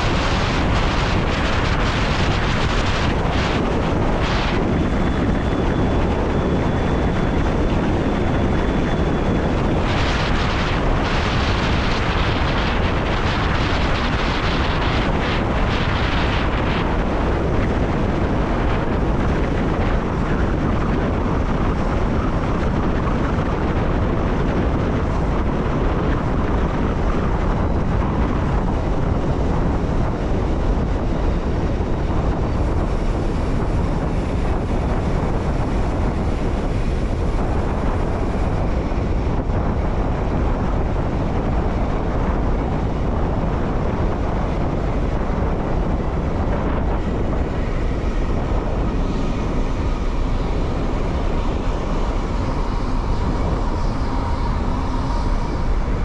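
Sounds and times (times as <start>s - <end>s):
electric train rumbling: 0.0s - 56.0s
faint high whine: 0.0s - 56.0s.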